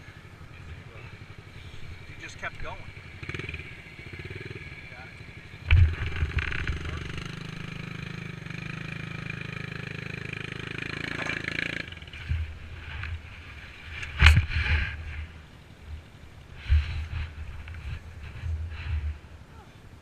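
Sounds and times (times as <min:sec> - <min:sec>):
dirt bike engine running: 0:00.0 - 0:19.4
low thumps: 0:05.6 - 0:07.5.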